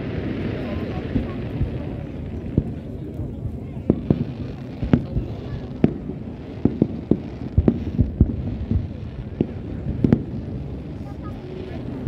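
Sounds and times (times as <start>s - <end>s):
firework shells booming: 0.0s - 12.0s.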